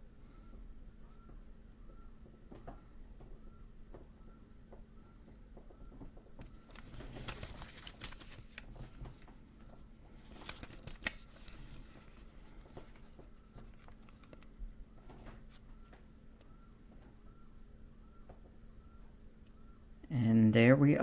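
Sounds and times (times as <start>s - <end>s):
faint steady hum: 0.0s - 21.0s
rustling with light clicks: 5.2s - 17.3s.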